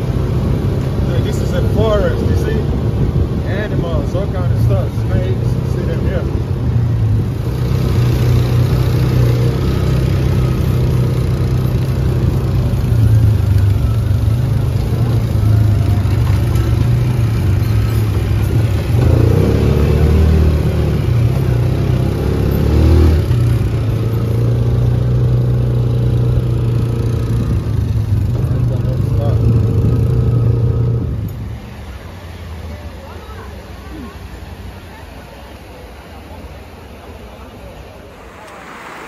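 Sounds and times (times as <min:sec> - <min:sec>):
vehicle engine running and revving: 0:04.5 - 0:31.8.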